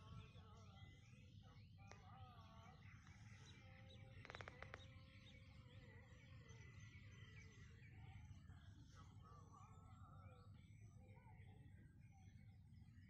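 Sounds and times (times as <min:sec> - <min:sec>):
birds chirping and calling: 0:00.0 - 0:10.3.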